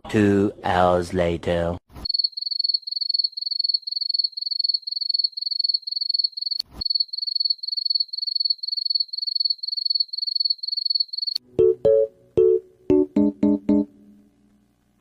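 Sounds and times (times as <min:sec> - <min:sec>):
cricket chirping: 0:02.0 - 0:11.4.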